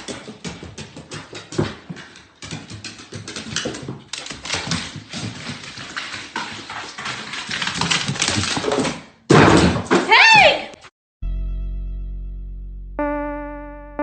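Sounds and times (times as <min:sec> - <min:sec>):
dog taps and scuffles: 0:00.0 - 0:09.0.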